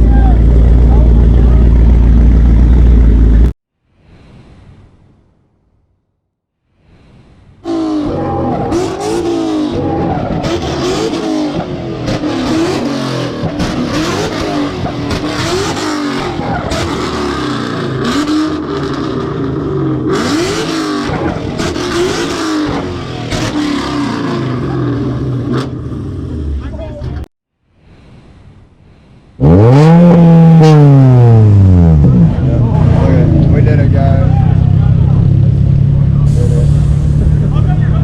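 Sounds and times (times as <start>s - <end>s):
vehicle engine revving: 7.6s - 26.7s, 29.4s - 38.0s.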